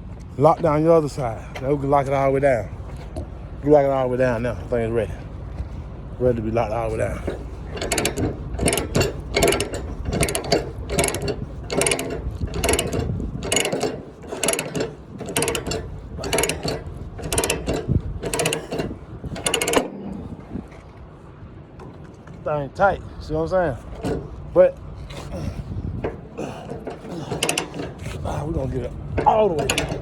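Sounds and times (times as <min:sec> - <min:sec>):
ratchet clicking: 0:07.2 - 0:19.9, 0:23.9 - 0:24.4, 0:26.0 - 0:30.0.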